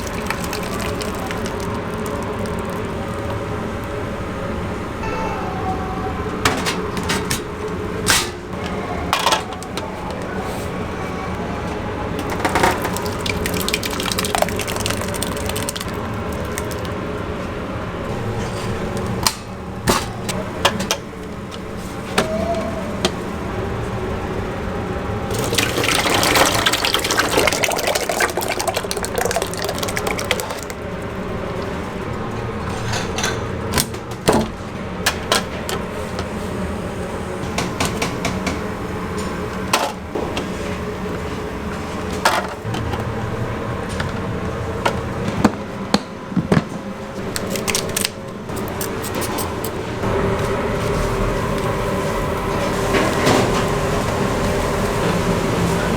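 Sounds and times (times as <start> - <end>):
water running and splashing: 0.0 - 3.3, 12.4 - 17.0, 25.3 - 31.7.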